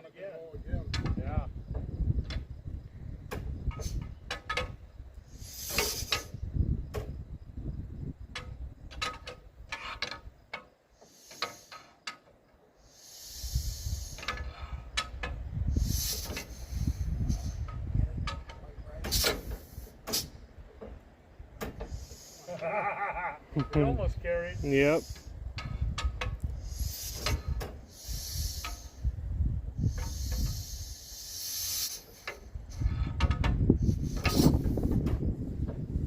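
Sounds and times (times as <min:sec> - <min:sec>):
short bursts of hissing: 0:03.7 - 0:07.2, 0:10.6 - 0:18.4, 0:19.0 - 0:20.5, 0:21.6 - 0:22.6, 0:24.4 - 0:33.2, 0:33.8 - 0:35.1.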